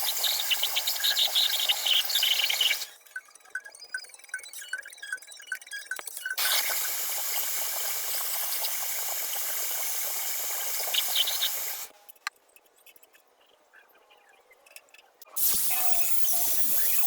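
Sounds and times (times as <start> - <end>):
paint spray hissing: 0.0 - 2.9, 6.4 - 11.9, 15.4 - 17.0.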